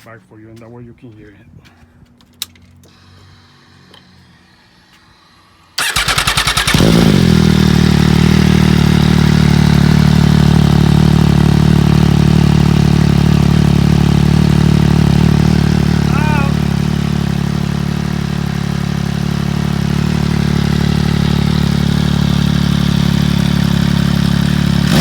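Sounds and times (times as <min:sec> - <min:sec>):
starter motor cranking: 0:05.7 - 0:07.5
motorcycle engine idling: 0:05.8 - 0:25.0.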